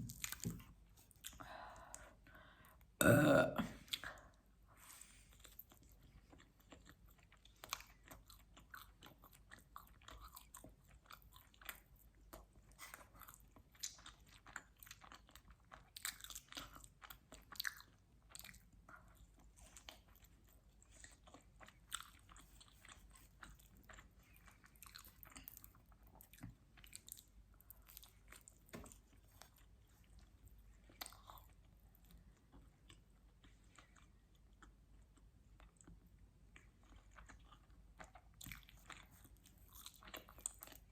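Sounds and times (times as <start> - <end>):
chewing crunchy food: 0.0 - 2.8, 3.8 - 40.9.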